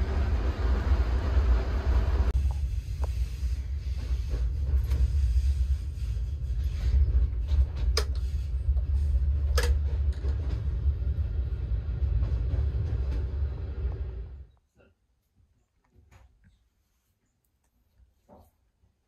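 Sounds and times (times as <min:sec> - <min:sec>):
train rumbling: 0:00.0 - 0:14.5.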